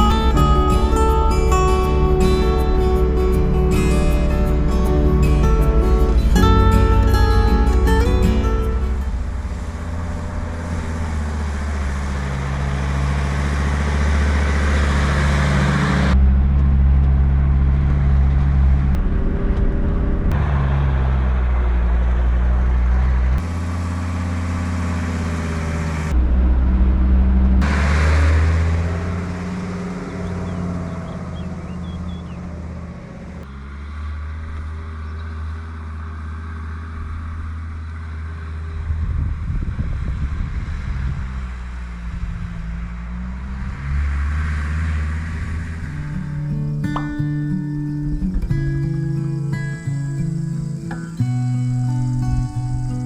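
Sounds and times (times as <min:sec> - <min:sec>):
wind noise: 0:00.0 - 0:23.4, 0:38.6 - 0:50.5
diesel engine running: 0:00.0 - 0:53.0.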